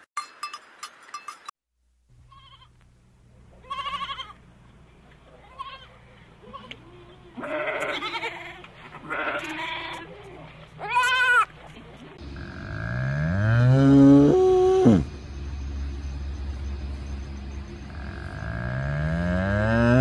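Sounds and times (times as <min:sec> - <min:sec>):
goats bleating: 0:03.6 - 0:04.4, 0:05.4 - 0:11.5
cow mooing: 0:12.2 - 0:15.1, 0:17.9 - 0:20.0.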